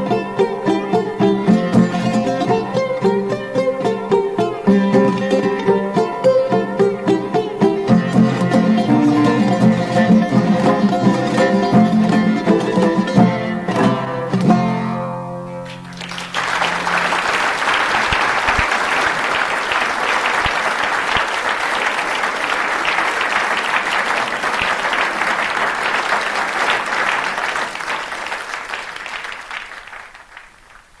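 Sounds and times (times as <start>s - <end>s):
plucked string music: 0.0s - 17.0s
audience applauding: 8.4s - 12.5s, 15.6s - 31.0s.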